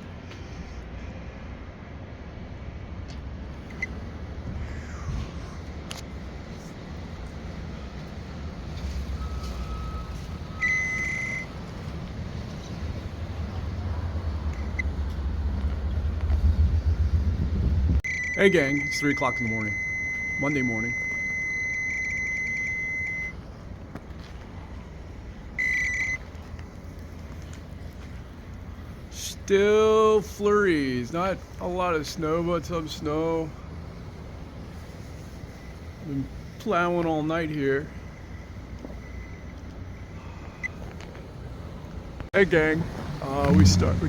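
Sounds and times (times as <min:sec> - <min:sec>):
truck engine rumbling: 0:00.0 - 0:44.0
faint steady tone: 0:03.6 - 0:13.1, 0:18.0 - 0:41.6
high electronic beep: 0:18.0 - 0:23.4.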